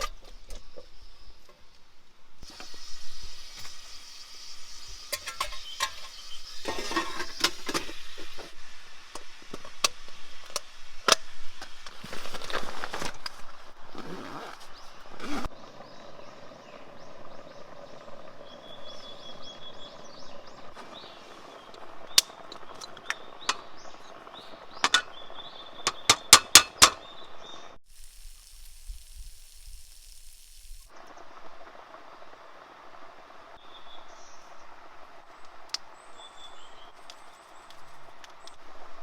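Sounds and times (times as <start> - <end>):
hiss over low rumble: 0.0 - 14.0, 14.7 - 26.0, 27.0 - 39.0
sharp clicks and knocks: 25.9 - 27.0.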